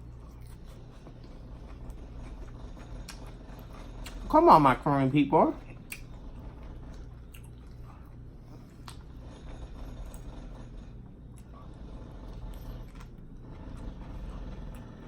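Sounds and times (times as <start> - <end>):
chewing with light clicks: 0.0 - 4.3, 5.6 - 9.1, 11.1 - 15.0
steady low rumble: 0.0 - 15.0.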